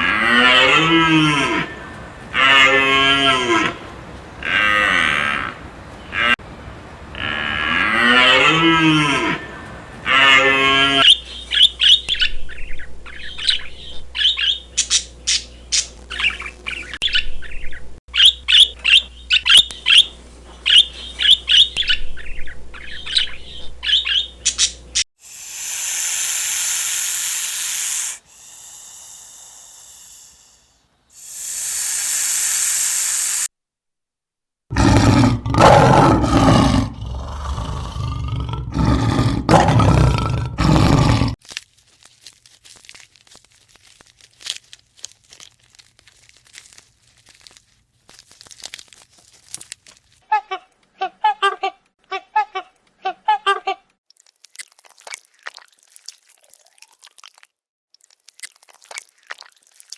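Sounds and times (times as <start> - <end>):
loud animal call: 0.0 - 6.4, 7.1 - 11.0, 25.2 - 33.5
hiss-like noise bursts: 3.5 - 4.5, 25.2 - 33.5
quick short bird chirps: 25.2 - 33.5.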